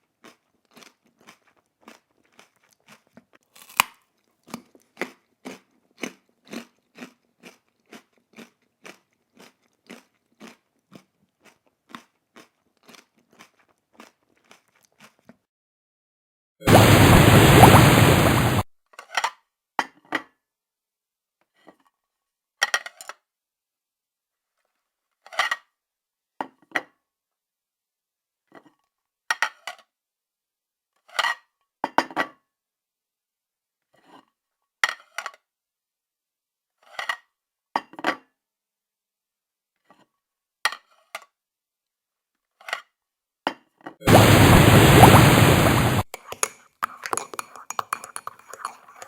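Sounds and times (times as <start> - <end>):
dishes and cutlery clinking: 46.2 - 49.0.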